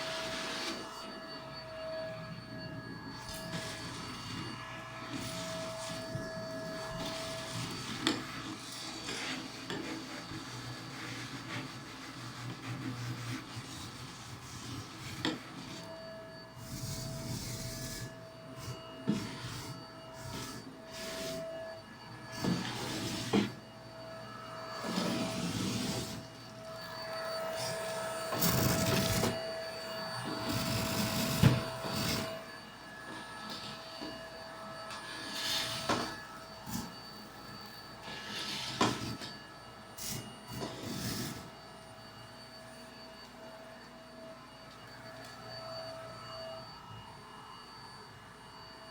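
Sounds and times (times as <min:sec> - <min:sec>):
vacuum cleaner running: 0:00.0 - 0:48.9
nozzle scraping carpet: 0:22.4 - 0:23.6, 0:24.8 - 0:33.8.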